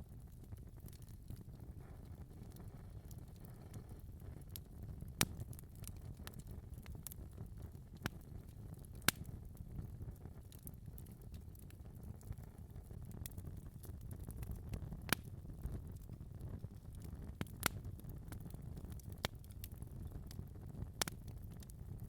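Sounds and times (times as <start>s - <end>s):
fire flames rumbling: 0.0s - 22.0s
wood fire crackling and popping: 0.0s - 22.0s.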